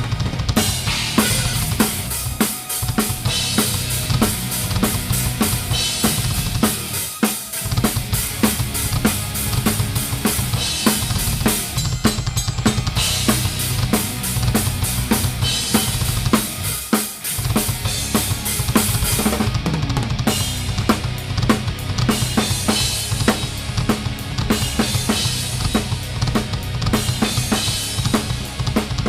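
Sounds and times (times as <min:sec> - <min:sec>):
drum kit playing fast beat: 0:00.0 - 0:29.0
live band playing: 0:00.2 - 0:21.6.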